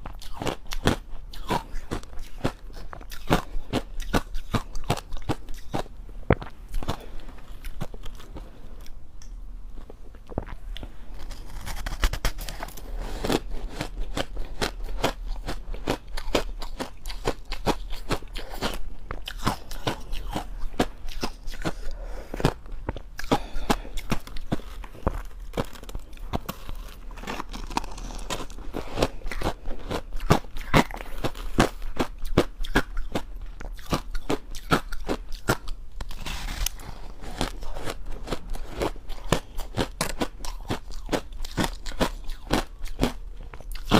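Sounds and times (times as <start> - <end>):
ice crunching between teeth: 23.2 - 43.9.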